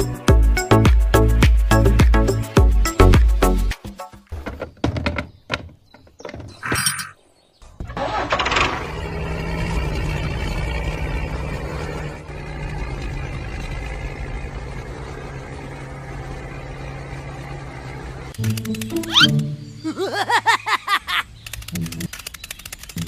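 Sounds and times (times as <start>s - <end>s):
tractor engine starting and running: 7.6s - 19.8s.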